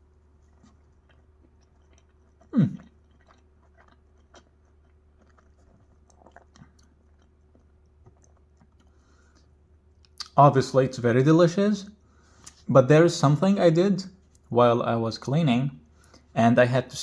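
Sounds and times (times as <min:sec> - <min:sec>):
wet mouth clicks while chewing: 0:00.5 - 0:10.4
short falling throat sound: 0:02.5 - 0:02.9.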